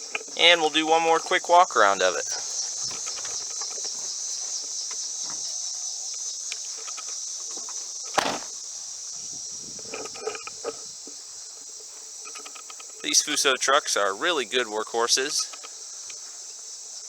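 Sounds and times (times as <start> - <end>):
crickets chirping: 0.0 - 17.0
sharp thump: 8.2 - 8.5.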